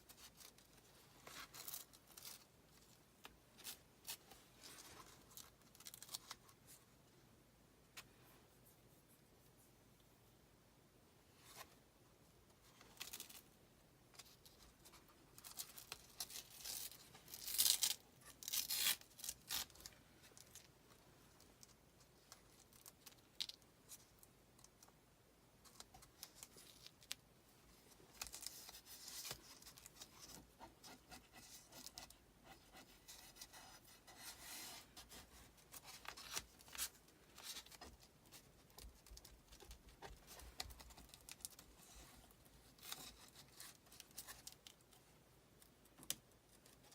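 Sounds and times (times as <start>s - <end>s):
scraping and rubbing strokes: 28.2s - 37.9s.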